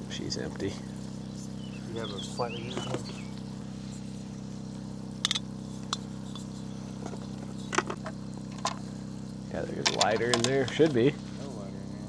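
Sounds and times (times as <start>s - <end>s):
low hum: 0.0s - 12.0s
small clicks and clinks: 5.2s - 8.9s, 9.8s - 10.8s.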